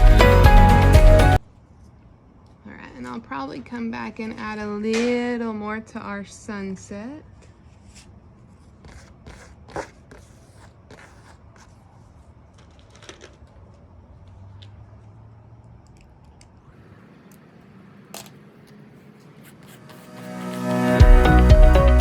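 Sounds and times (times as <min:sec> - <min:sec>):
paintbrush strokes on canvas: 0:07.3 - 0:12.4, 0:18.6 - 0:21.7.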